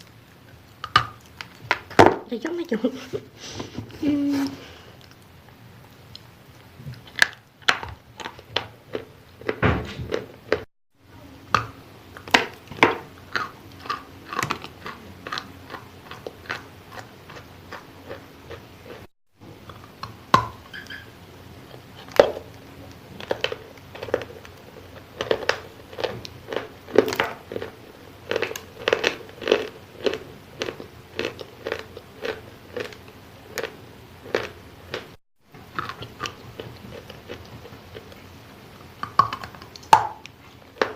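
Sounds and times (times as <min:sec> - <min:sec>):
chewing with moist crunches: 0:00.0 - 0:02.0, 0:04.7 - 0:10.7, 0:11.5 - 0:40.9.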